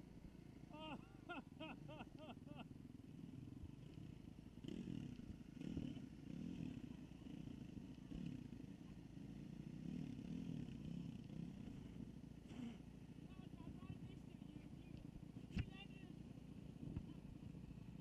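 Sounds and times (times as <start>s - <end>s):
dirt bike engine revving: 4.6s - 14.0s.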